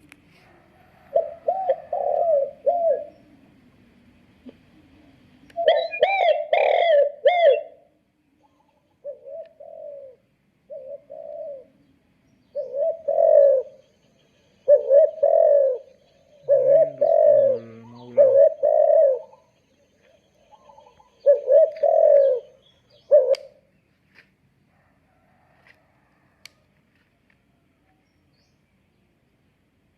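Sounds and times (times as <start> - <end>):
dove cooing through small speaker: 1.1 - 3.4, 4.5 - 7.8, 9.0 - 11.8, 12.6 - 13.8, 14.7 - 19.5, 20.5 - 23.6.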